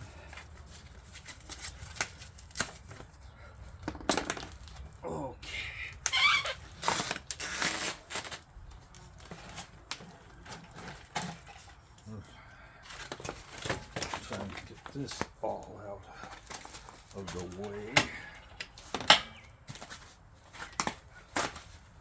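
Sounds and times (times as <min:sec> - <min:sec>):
packaging rustling and tearing: 0:00.1 - 0:03.2, 0:06.0 - 0:11.9, 0:16.3 - 0:18.0
short squeaks: 0:06.0 - 0:08.0.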